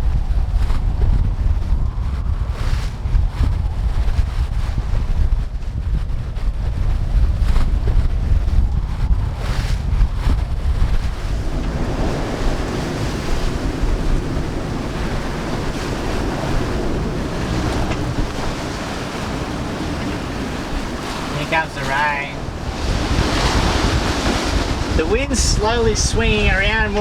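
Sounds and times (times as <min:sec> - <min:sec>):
wind buffeting microphone: 0:00.0 - 0:27.0
waves and water rushing: 0:11.1 - 0:27.0.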